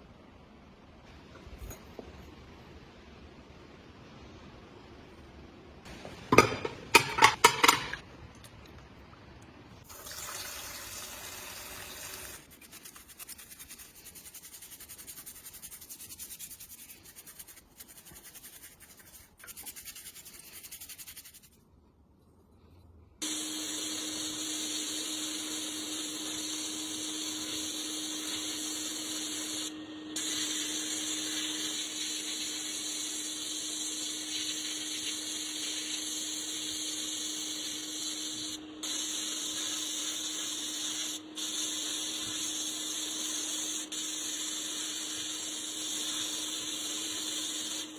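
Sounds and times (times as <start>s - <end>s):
power tool hissing: 23.2s - 47.9s.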